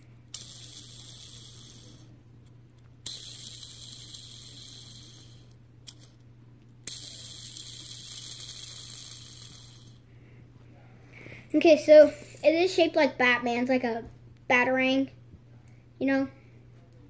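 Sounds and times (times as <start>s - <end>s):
fidget spinner whirring: 0.0s - 6.2s, 6.8s - 10.1s.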